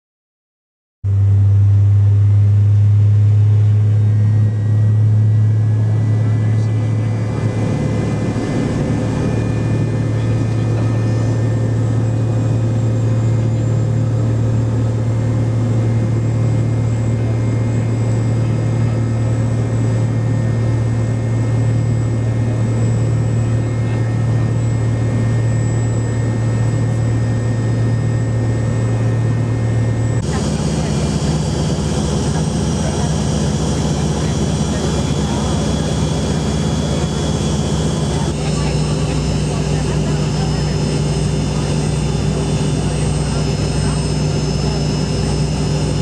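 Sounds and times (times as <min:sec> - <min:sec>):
jet engines droning in cabin: 0:01.1 - 0:46.0.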